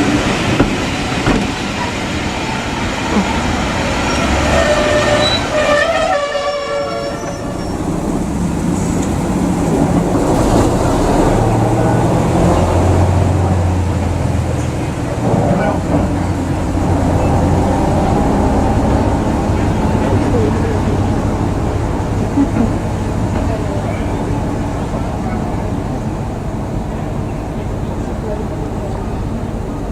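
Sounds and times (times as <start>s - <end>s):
train rail and wheel noise: 0.0s - 29.9s
train horn: 2.4s - 7.8s
low engine hum: 7.4s - 29.9s.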